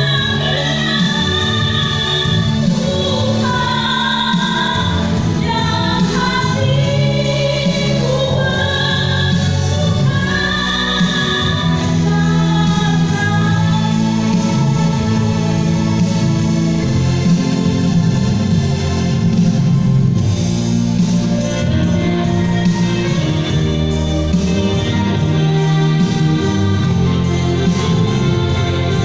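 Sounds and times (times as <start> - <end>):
woman singing slow song: 0.0 - 15.7
instrumental accompaniment: 0.0 - 29.0.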